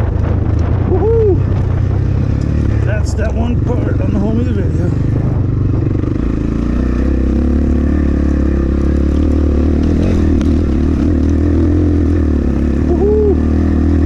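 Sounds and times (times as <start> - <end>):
wind buffeting microphone: 0.0 - 6.6
dirt bike engine running: 0.0 - 14.0.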